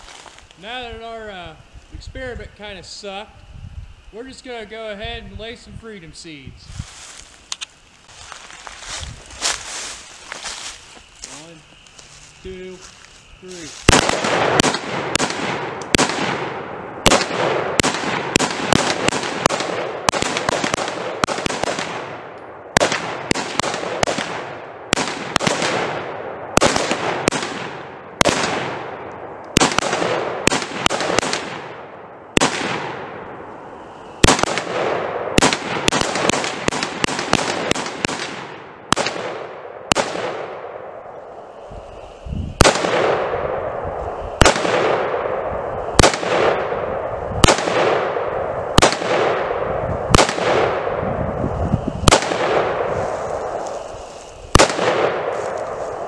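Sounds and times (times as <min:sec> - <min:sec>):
gunshots echoing: 0:13.9 - 0:33.4, 0:34.2 - 0:41.1, 0:42.6 - 0:51.2, 0:52.0 - 0:53.8, 0:54.5 - 0:56.0.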